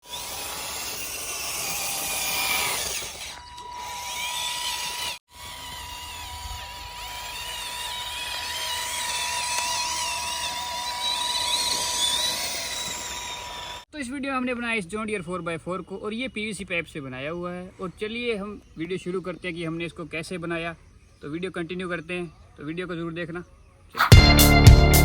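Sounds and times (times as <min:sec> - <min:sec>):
small electric motors whining: 0:00.0 - 0:13.9.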